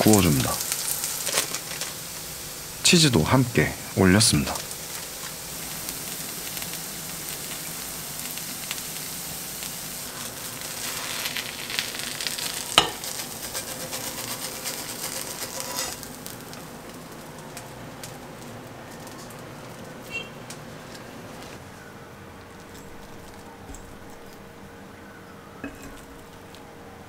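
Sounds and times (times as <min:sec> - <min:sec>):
patties sizzling in a pan: 0:00.0 - 0:20.2.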